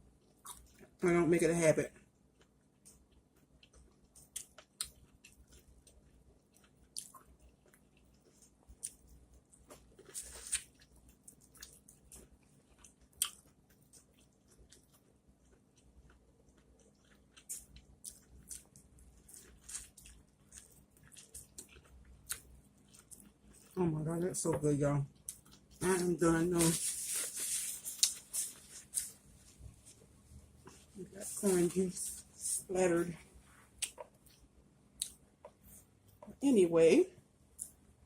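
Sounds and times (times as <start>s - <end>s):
chewing corn on the cob: 0.2s - 1.0s, 1.9s - 23.8s.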